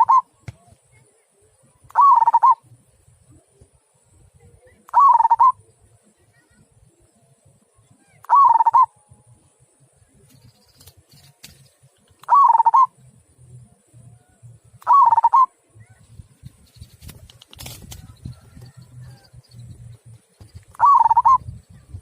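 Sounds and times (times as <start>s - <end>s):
dove cooing: 0.0s - 0.3s, 2.0s - 2.6s, 5.0s - 5.6s, 8.3s - 8.9s, 12.2s - 12.9s, 14.9s - 15.5s, 20.7s - 21.6s.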